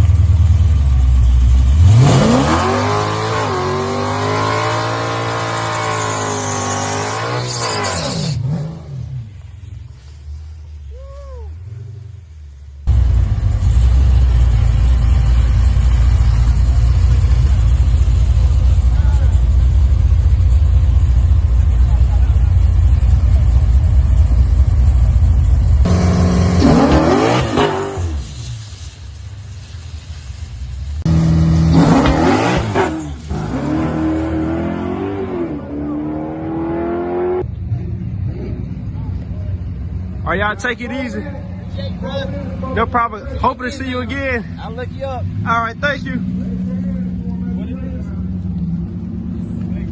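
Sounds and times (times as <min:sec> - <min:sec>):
car engine rumbling: 0:00.0 - 0:49.9
rising and falling tone: 0:31.1 - 0:37.5.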